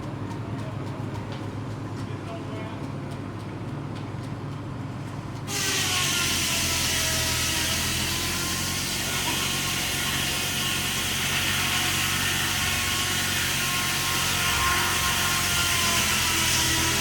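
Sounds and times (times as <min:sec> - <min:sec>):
engine running with hiss: 0:04.9 - 0:17.0.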